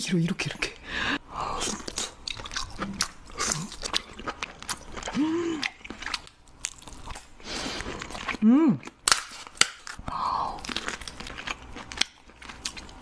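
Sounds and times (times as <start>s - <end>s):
person chewing crunchy food: 1.4s - 13.0s
person humming: 5.1s - 5.7s, 8.4s - 8.9s.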